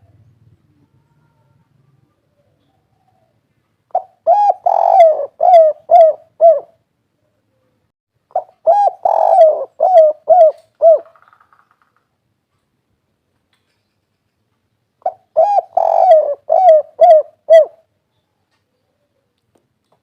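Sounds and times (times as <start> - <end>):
dove cooing: 2.3 - 6.8, 8.3 - 11.2, 15.0 - 17.9.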